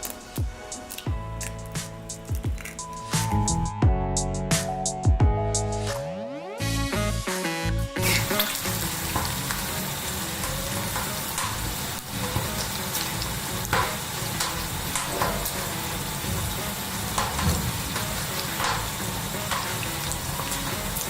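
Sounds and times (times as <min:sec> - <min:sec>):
eggs sizzling in frying pan: 0:08.0 - 0:21.0.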